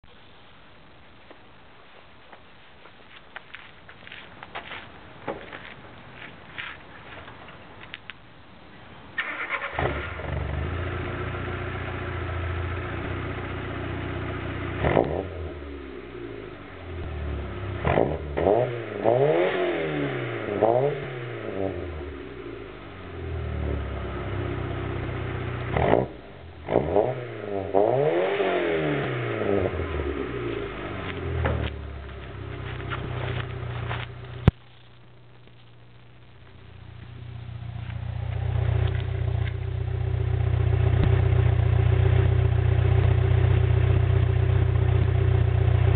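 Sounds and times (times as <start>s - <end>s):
car engine starting and idling: 9.0s - 34.6s, 35.8s - 45.9s
engine revving: 14.2s - 34.0s.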